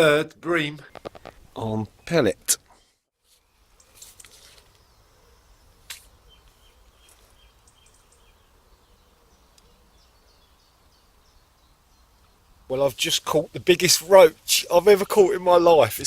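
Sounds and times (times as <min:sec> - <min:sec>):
small bird chirping: 0:03.3 - 0:12.7.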